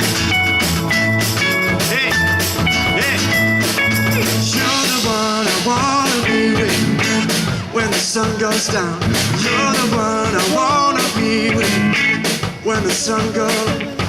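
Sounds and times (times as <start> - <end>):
bass: 0.0 - 14.0
drum beat: 0.0 - 14.0
guitar: 0.0 - 14.0.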